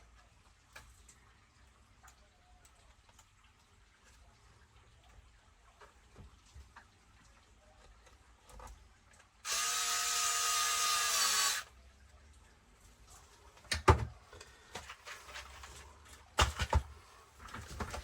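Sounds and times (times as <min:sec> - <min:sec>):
power driver whirring: 0:09.5 - 0:11.7.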